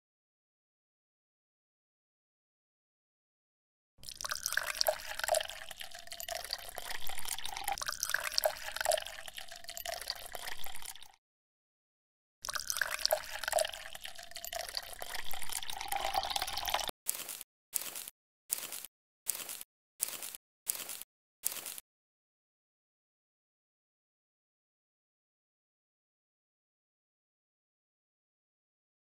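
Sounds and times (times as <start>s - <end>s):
water pouring in a thin stream: 4.0s - 11.2s, 12.4s - 16.9s.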